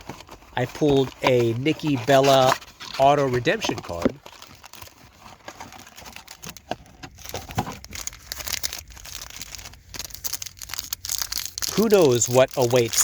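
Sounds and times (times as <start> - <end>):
plastic wrapping tearing and crinkling: 0.0 - 13.0.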